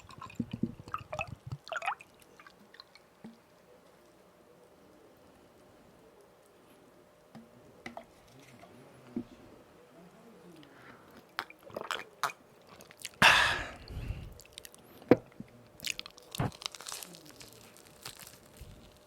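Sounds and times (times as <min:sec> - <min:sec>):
crisp chewing clicks: 0:15.6 - 0:19.0
crunching bite: 0:15.8 - 0:19.0.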